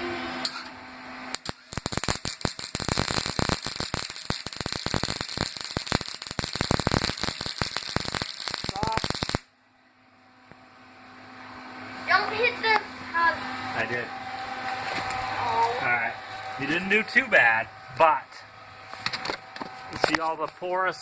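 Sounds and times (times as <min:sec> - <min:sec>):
welding arc crackling: 0:01.3 - 0:09.5, 0:16.4 - 0:17.1.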